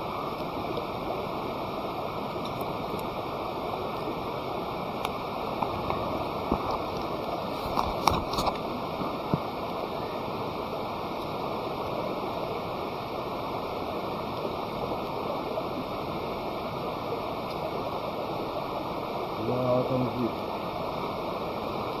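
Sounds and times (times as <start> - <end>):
burning wood popping: 5.0 - 9.5.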